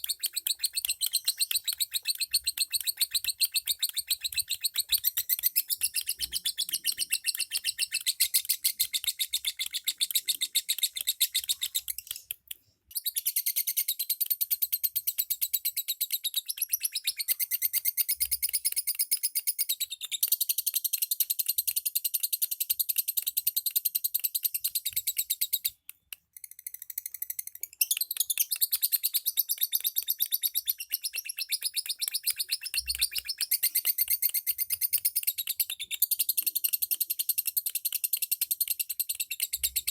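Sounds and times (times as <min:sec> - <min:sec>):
lovebirds chirping: 0:00.0 - 0:14.2, 0:26.8 - 0:36.9.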